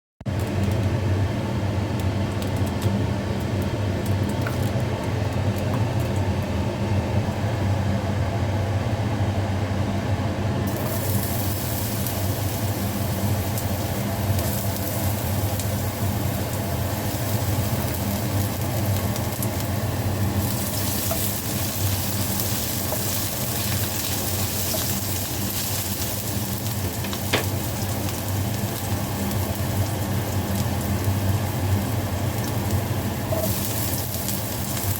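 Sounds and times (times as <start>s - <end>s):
food sizzling in a pan: 10.7s - 34.9s.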